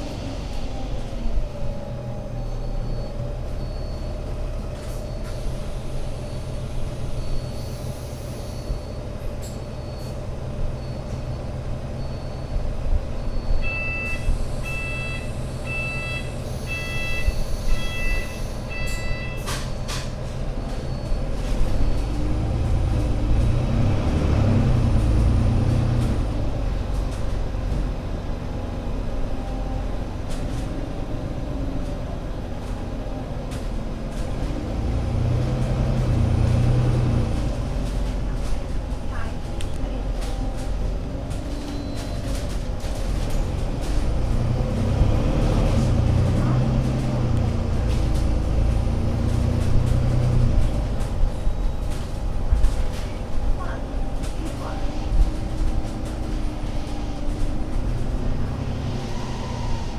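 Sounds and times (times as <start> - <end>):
bus engine running: 0.0 - 59.9
faint high beep: 13.3 - 19.5
loud electronic beeps: 13.7 - 19.4.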